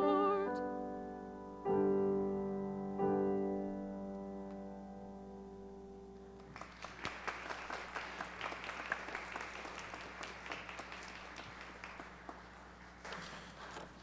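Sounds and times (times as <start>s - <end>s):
piano chord ringing: 0.0s - 6.3s
congregation applauding: 6.4s - 13.2s.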